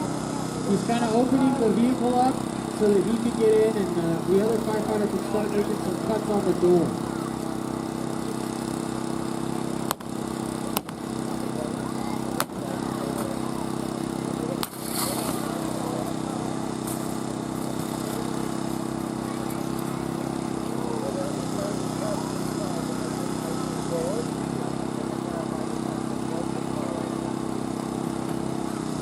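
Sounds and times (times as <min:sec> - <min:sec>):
power unit engine running: 0:00.0 - 0:29.0
sharp metallic cracks: 0:14.6 - 0:15.4.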